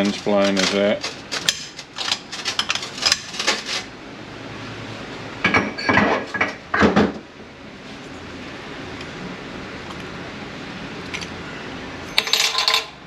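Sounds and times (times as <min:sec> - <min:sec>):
metal parts clinking and clanking: 0:00.0 - 0:03.9, 0:12.1 - 0:13.0.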